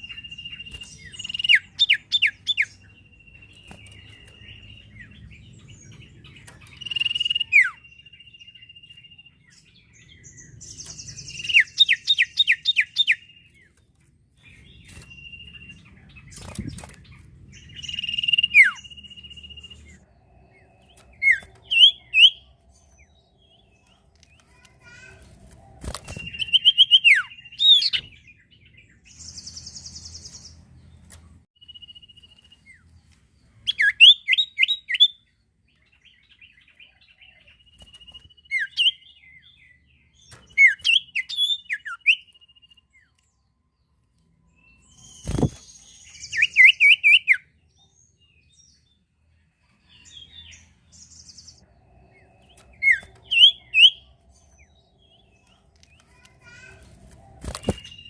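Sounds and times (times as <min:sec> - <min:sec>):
songbird chirping: 0:00.0 - 0:58.0.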